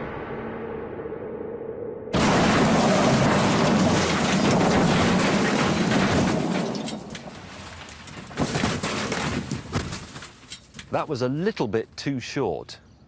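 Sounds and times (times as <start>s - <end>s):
car crash and grinding: 2.1s - 10.9s
sharp clatters: 2.2s - 11.0s.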